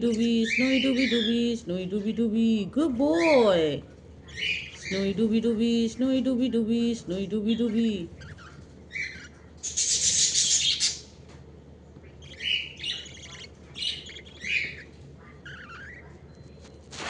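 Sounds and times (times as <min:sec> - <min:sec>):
budgie chirping: 0:00.0 - 0:01.6, 0:04.2 - 0:05.3, 0:07.4 - 0:11.2, 0:12.0 - 0:16.9
harsh scratchy bird chatter: 0:08.2 - 0:11.1, 0:12.2 - 0:17.0.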